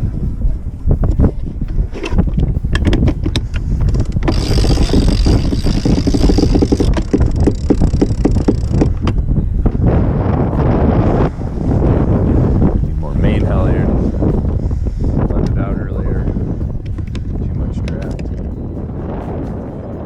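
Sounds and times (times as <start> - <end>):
wind buffeting microphone: 0.0 - 20.0
boat gear clicks and knocks: 1.0 - 9.2, 16.8 - 18.5
high whirring: 2.8 - 17.2.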